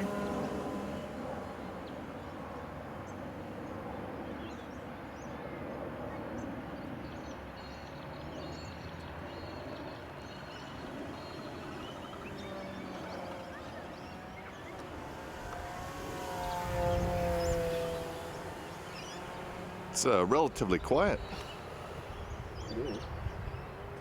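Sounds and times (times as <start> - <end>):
bird chirps: 7.1 - 24.0
faint thin whine: 9.6 - 24.0.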